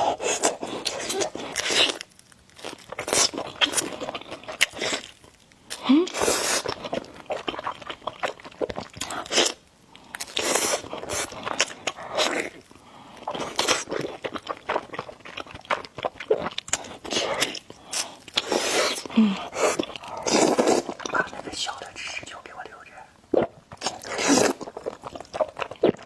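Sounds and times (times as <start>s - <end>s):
crisp food crunches: 0.0s - 22.0s, 23.7s - 26.0s
person chewing food: 0.0s - 22.0s, 22.6s - 26.0s.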